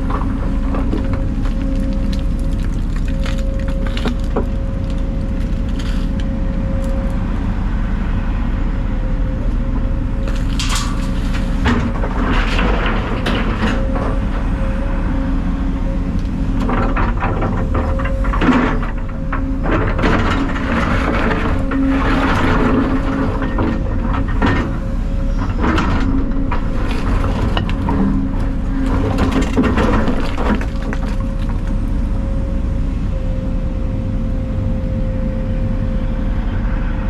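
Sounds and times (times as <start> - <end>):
debris cracking and crunching: 0.0 - 7.6, 9.4 - 14.3, 16.6 - 32.3
heavy diesel engine running: 0.0 - 37.0.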